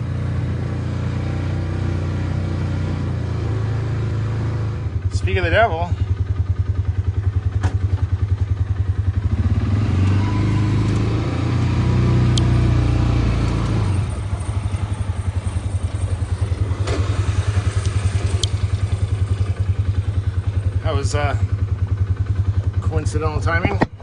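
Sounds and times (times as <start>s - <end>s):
smooth louder engine: 0.0s - 23.8s
engine idling chug: 4.9s - 9.5s, 14.0s - 24.0s
sharp clicks: 17.8s - 18.7s.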